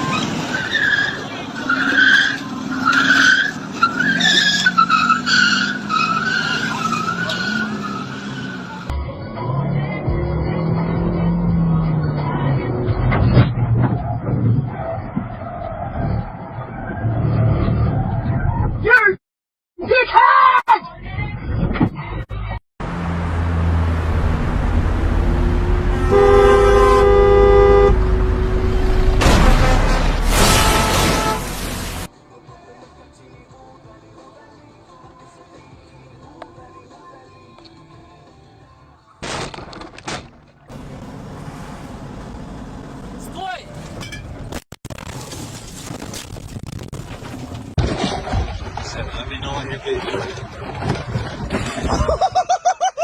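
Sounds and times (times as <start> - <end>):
car tyres squealing: 0.0 - 8.9, 13.2 - 18.8
traffic rumble: 22.8 - 32.1, 40.4 - 47.8
car horn blaring: 25.9 - 31.8.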